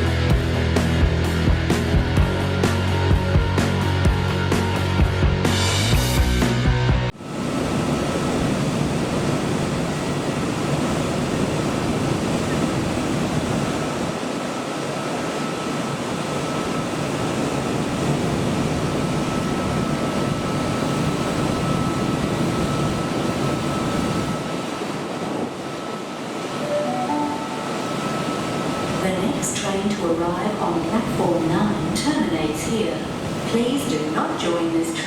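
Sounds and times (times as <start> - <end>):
rushing hum: 7.1 - 35.0
faint high tone: 26.6 - 28.6.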